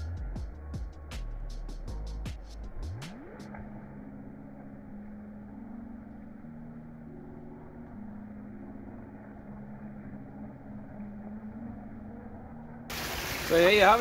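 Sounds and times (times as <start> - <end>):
rushing river water: 12.9 - 14.0.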